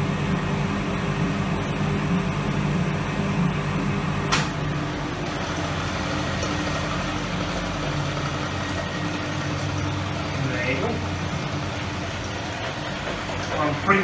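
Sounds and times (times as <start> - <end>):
washing machine motor hum: 0.0 - 14.0
sharp click: 4.3 - 4.6.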